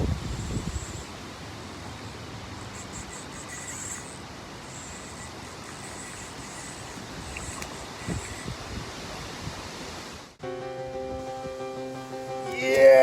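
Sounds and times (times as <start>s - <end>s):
wind noise: 0.0s - 1.2s, 4.7s - 10.4s
insects chirping: 0.0s - 10.3s.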